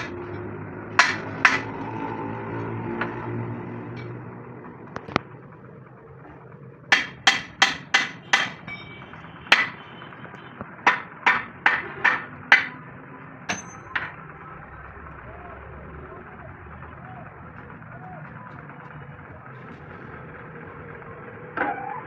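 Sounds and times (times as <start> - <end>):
hammer striking steel: 0.0 - 2.0, 6.9 - 9.9, 10.8 - 12.9, 13.5 - 14.3.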